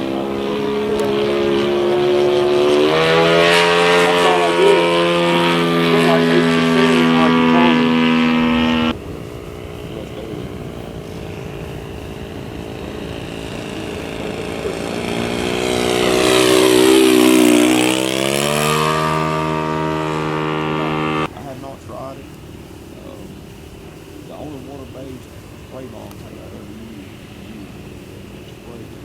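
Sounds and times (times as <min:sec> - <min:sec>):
model plane engine passing by: 0:00.0 - 0:21.3.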